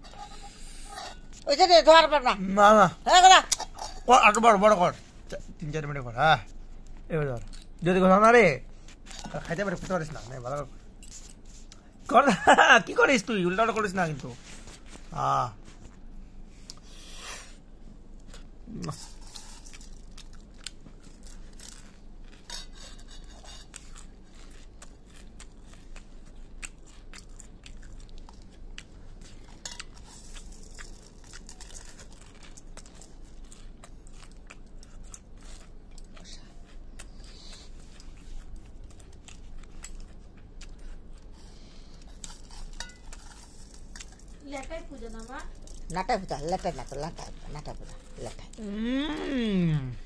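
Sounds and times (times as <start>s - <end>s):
person crunching puffed rice: 18.2s - 50.0s.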